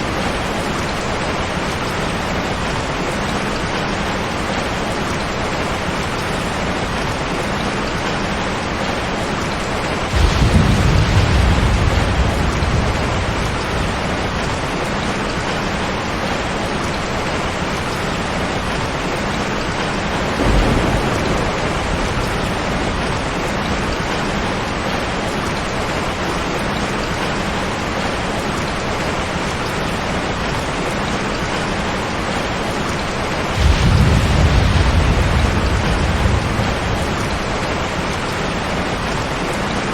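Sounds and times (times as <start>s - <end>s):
steady rain: 0.0s - 39.9s
thunder rumbling: 9.8s - 16.7s, 19.6s - 25.9s, 33.1s - 39.6s.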